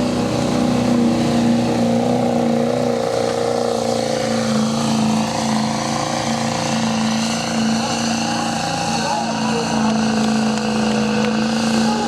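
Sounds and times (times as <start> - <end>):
truck engine revving high: 0.0 - 12.0.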